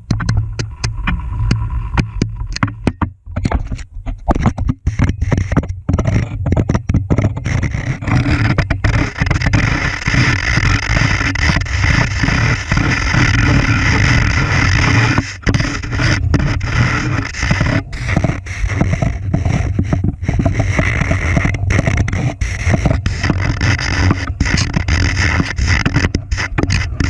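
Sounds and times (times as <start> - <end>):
camera rig knocking and scraping: 0.0 - 27.0
steady rushing noise: 7.6 - 27.0.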